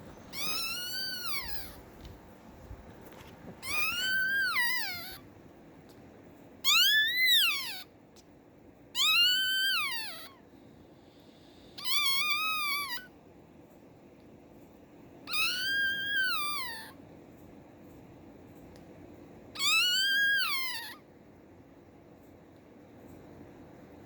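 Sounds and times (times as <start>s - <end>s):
puppy crying high-pitched wails: 0.3s - 1.8s, 3.6s - 5.3s, 6.6s - 7.9s, 8.9s - 10.4s, 11.8s - 13.1s, 15.2s - 17.0s, 19.6s - 21.1s.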